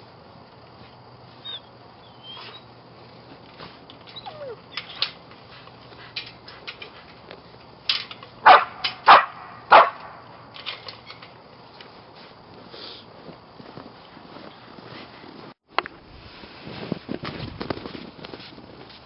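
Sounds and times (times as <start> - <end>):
dog barking: 8.4 - 10.0.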